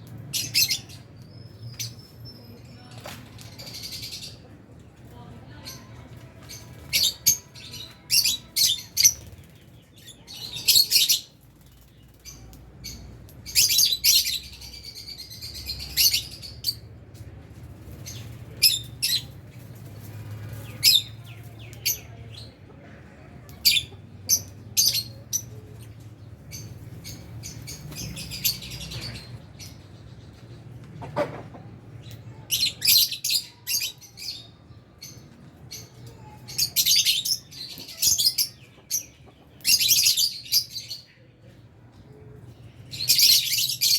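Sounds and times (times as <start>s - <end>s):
lovebirds chirping: 0.0s - 4.5s, 23.4s - 30.7s.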